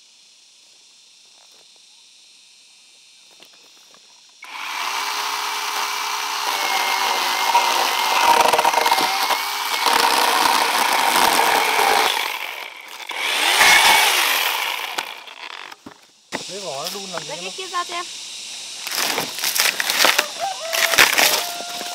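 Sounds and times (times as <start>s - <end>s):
power saw cutting timber: 4.4s - 17.4s, 18.8s - 21.9s.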